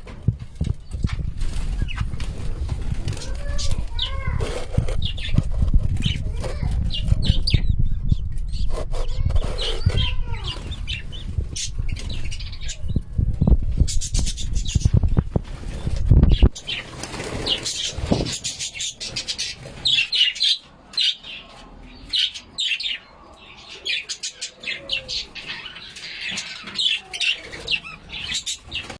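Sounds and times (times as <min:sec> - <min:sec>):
birds flapping wings: 0:00.0 - 0:07.4, 0:13.9 - 0:19.9
heavy rumble: 0:00.0 - 0:18.3
high chirping calls: 0:03.2 - 0:28.9.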